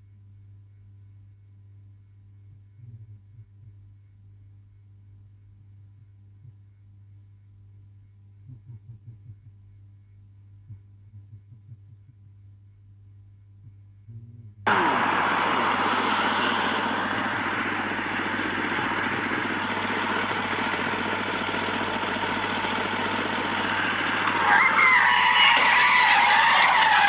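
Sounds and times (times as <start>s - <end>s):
car road noise: 14.7s - 27.0s.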